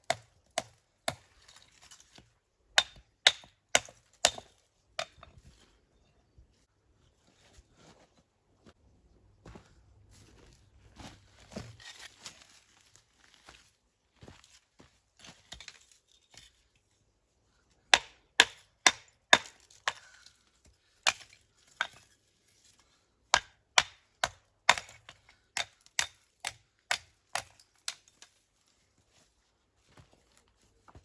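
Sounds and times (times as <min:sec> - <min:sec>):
hand tool striking stone: 0:02.8 - 0:05.3, 0:17.9 - 0:20.1, 0:21.0 - 0:22.0, 0:23.3 - 0:28.2.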